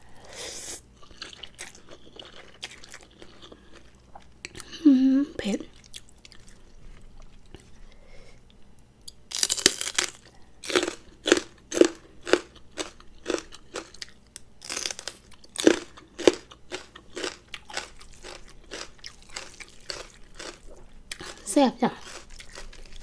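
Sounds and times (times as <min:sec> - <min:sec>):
person chewing crunchy food: 0:00.6 - 0:04.7, 0:05.7 - 0:23.0.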